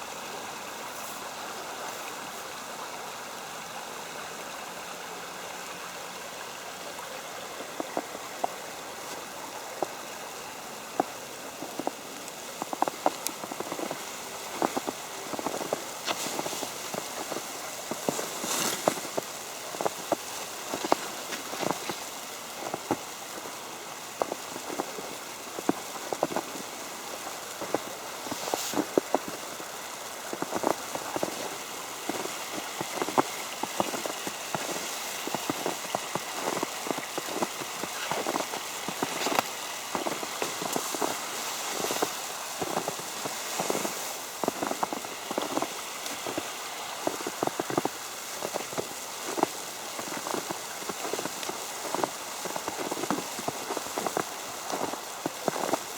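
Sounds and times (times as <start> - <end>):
soft steady hiss: 0.0 - 55.9
snow ticking on umbrella: 7.6 - 55.9.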